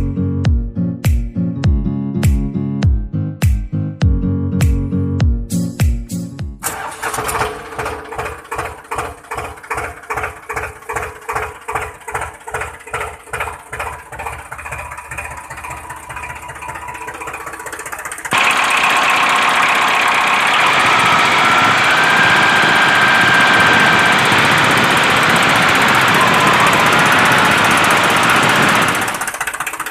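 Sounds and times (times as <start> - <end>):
small motor knocking: 7.0 - 29.9
mechanical running with faint whine: 13.8 - 29.9.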